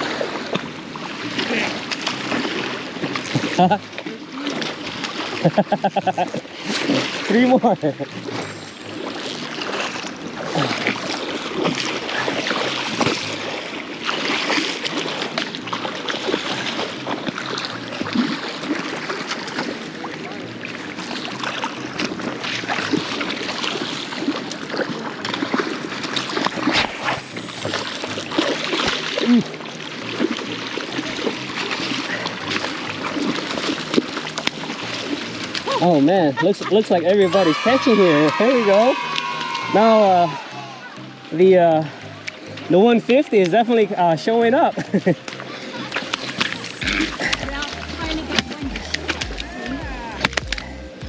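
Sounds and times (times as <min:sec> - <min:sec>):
river current rushing: 0:00.0 - 0:51.0.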